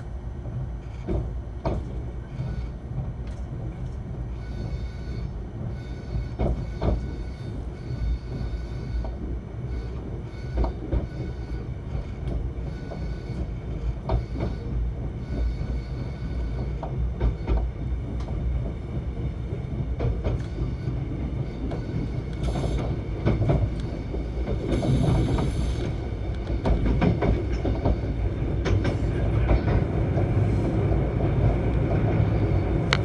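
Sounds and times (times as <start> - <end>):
train rumbling: 0.0 - 33.0
wheels clicking over rail joints: 19.5 - 30.4.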